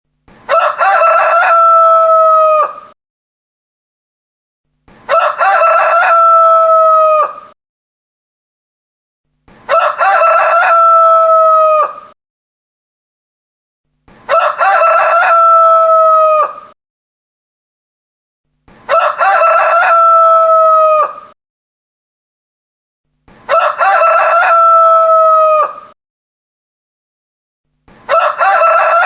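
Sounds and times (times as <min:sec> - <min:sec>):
rooster crowing: 0:00.5 - 0:03.0, 0:05.1 - 0:07.6, 0:09.7 - 0:12.2, 0:14.3 - 0:16.8, 0:18.9 - 0:21.4, 0:23.5 - 0:26.0, 0:28.1 - 0:29.0.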